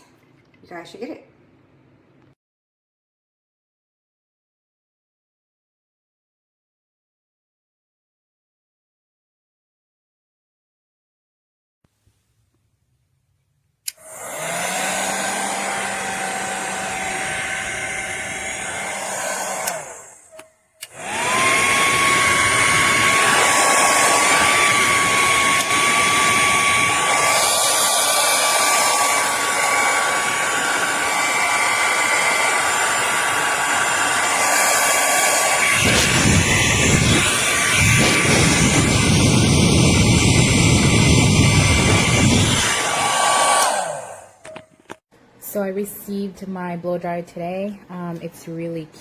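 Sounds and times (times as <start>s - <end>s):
hair dryer running: 13.9s - 44.6s.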